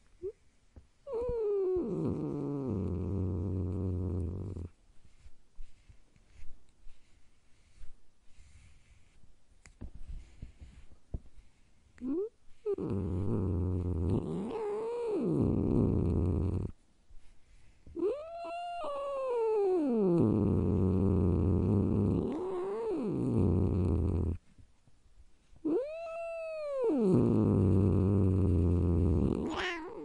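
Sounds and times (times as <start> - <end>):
cat yowling: 18.0 - 19.9, 25.7 - 27.3, 29.4 - 30.0.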